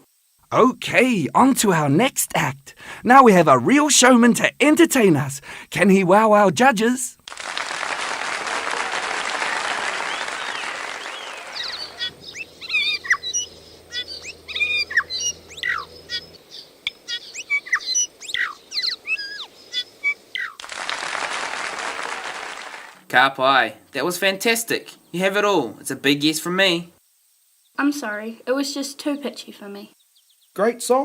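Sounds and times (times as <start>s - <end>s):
applause: 7.2s - 12.1s, 20.6s - 23.0s
bird chirping and whistling: 10.1s - 20.6s.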